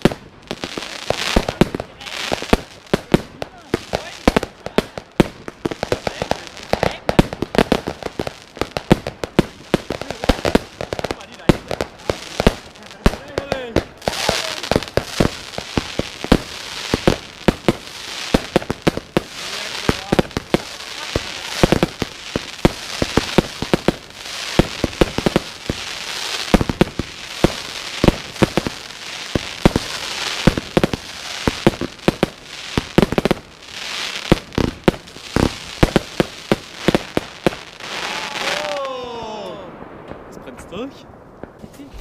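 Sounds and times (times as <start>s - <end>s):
firework crackling: 0.0s - 42.0s
firework shells bursting: 2.3s - 33.4s.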